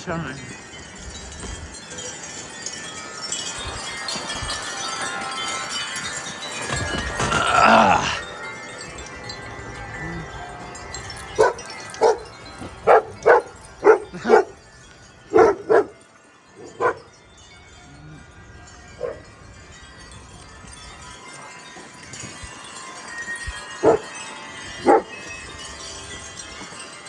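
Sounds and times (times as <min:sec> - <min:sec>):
faint wind chimes: 0:00.0 - 0:27.0
wind noise: 0:00.5 - 0:07.4, 0:16.6 - 0:21.2, 0:21.8 - 0:26.8
dog barking: 0:11.4 - 0:14.6, 0:15.3 - 0:16.0, 0:16.6 - 0:17.1, 0:19.0 - 0:19.2, 0:23.8 - 0:24.1, 0:24.8 - 0:25.1.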